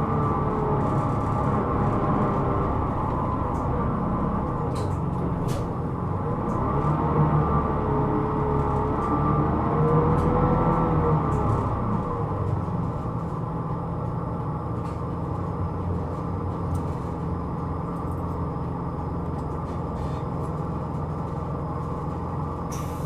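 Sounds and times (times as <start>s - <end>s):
diesel bus engine idling: 11.8s - 23.0s.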